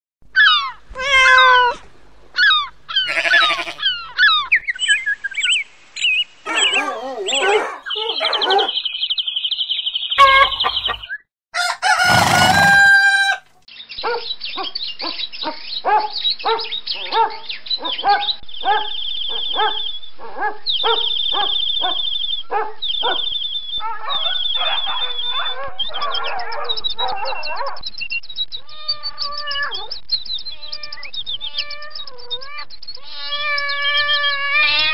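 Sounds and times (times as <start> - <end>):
bird calls: 2.4 - 27.8
chickens and rooster: 10.2 - 13.6.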